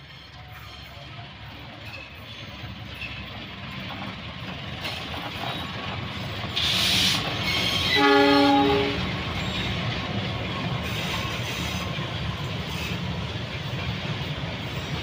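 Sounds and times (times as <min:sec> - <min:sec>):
train wheels rumbling: 0:00.0 - 0:15.0
locomotive horn chord: 0:07.9 - 0:09.2.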